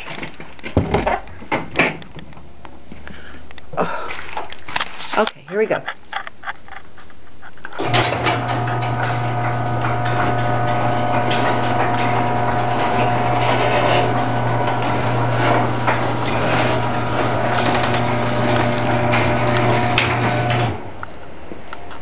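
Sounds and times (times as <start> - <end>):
door rattling along tracks: 7.8 - 21.0
garage door motor hum: 7.8 - 21.4.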